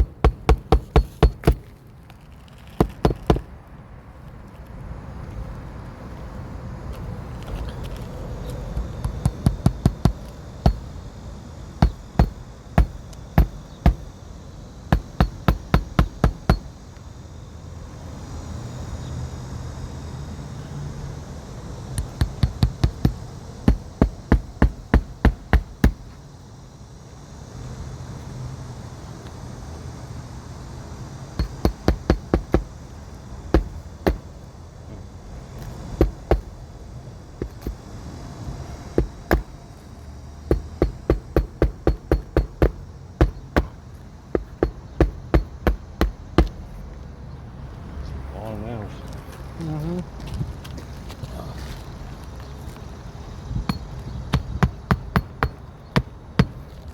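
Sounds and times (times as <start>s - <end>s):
hammer driving nails: 0.0s - 1.7s, 2.8s - 3.5s, 11.8s - 14.1s, 14.9s - 16.7s, 22.0s - 26.0s, 31.4s - 32.7s, 33.6s - 34.2s, 36.0s - 36.5s, 39.0s - 39.5s, 40.5s - 43.8s, 44.4s - 46.6s, 53.7s - 56.6s.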